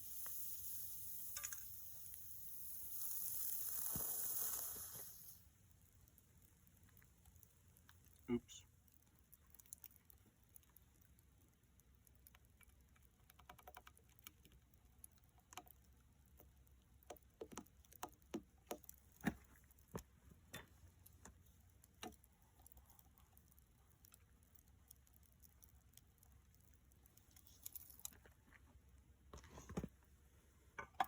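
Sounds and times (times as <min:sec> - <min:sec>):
faint clicks and taps: 0:05.8 - 0:30.1.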